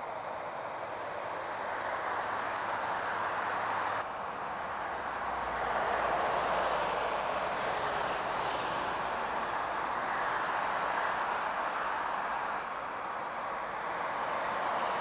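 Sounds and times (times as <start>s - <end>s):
tyre and road noise: 0.0s - 15.0s
heavy truck passing: 0.4s - 15.0s
high hiss: 6.6s - 12.6s.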